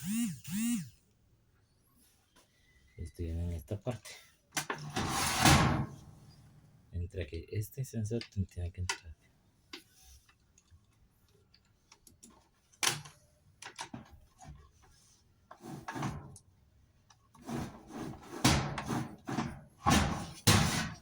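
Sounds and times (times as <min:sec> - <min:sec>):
knocks and scrapes of tools: 0:17.3 - 0:21.0.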